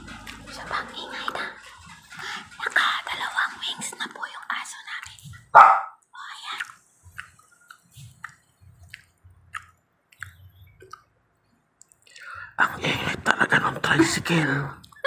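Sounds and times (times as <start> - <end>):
person chewing with wet clicks: 4.9 - 5.4, 6.0 - 12.3.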